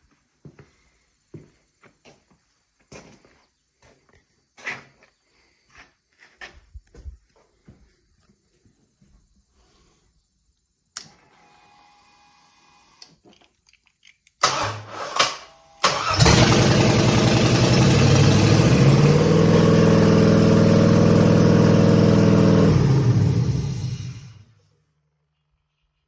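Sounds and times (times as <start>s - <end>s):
click: 10.9s - 11.2s, 13.0s - 14.5s
starter cranking engine: 14.4s - 24.4s
engine running loud: 15.9s - 24.5s.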